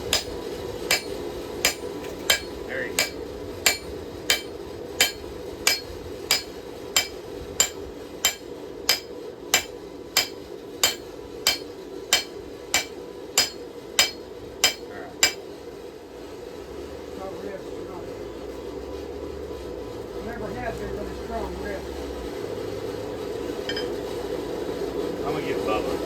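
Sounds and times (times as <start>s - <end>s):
hammer striking steel on anvil: 0.0s - 15.5s, 23.6s - 24.0s
steady low hum: 0.0s - 16.7s.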